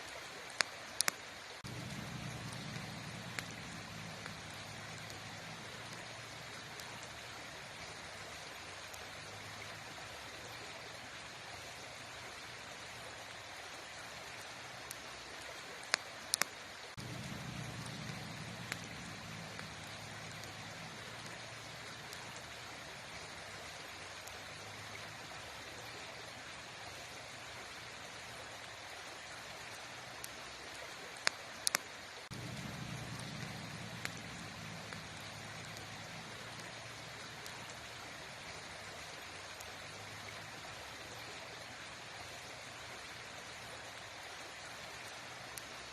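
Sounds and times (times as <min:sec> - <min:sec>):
campfire crackling: 0:00.0 - 0:45.9
low rumble: 0:01.6 - 0:06.6, 0:17.0 - 0:21.8, 0:32.3 - 0:37.7.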